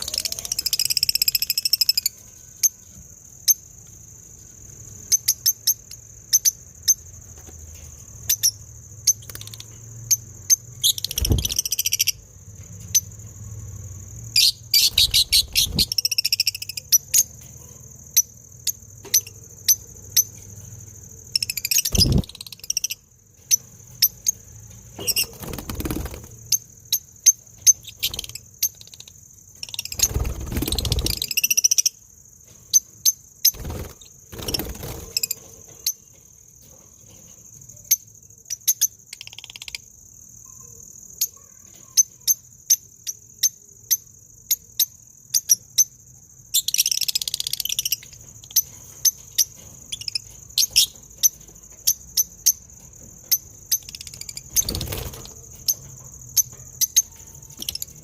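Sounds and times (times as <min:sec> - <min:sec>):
sharp bird chirps: 0:08.2 - 0:13.1, 0:14.3 - 0:17.4, 0:21.2 - 0:32.1, 0:37.7 - 0:58.0
high-pitched insect drone: 0:21.3 - 0:23.0.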